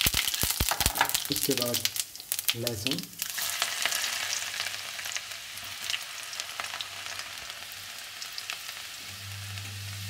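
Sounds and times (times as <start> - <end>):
spices sizzling in hot oil: 0.0 - 10.0.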